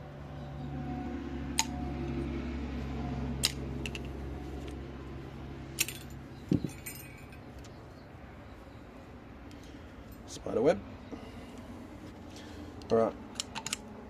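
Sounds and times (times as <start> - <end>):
steady low hum: 0.0 - 14.0
sharp metallic clicks and clinks: 3.4 - 4.8, 5.8 - 7.8, 12.8 - 13.8.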